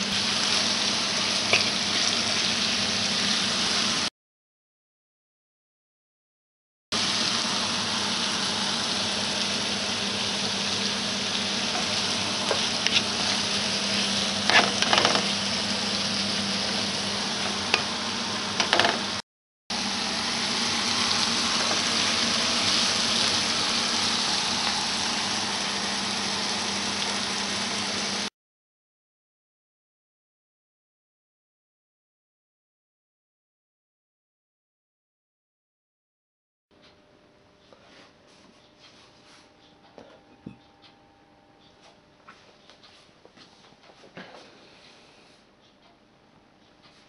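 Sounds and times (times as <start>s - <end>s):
food sizzling in a frying pan: 0.0s - 4.1s, 7.0s - 19.2s, 19.8s - 28.3s
wooden spatula scraping a pan: 10.5s - 17.9s.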